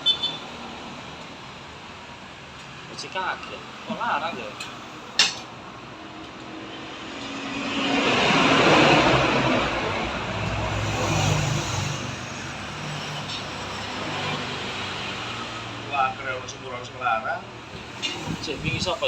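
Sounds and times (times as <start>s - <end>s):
vehicle passing by: 6.8s - 16.3s.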